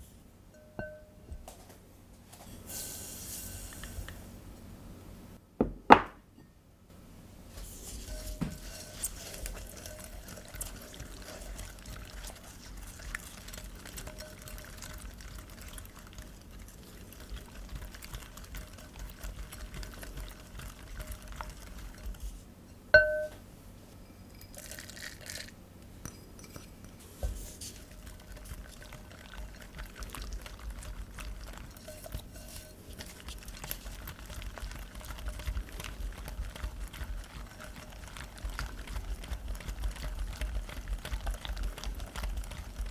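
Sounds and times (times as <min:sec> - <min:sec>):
utensil clinking against bowl: 0:00.6 - 0:01.2, 0:23.0 - 0:23.4
stirring batter in bowl: 0:07.6 - 0:22.5, 0:26.0 - 0:42.9.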